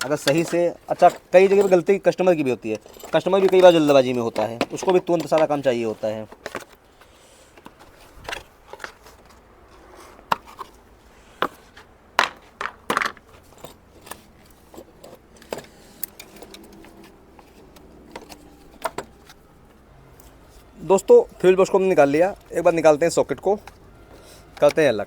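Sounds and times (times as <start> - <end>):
plastic and metal clicks and rattles: 12.2 - 20.3.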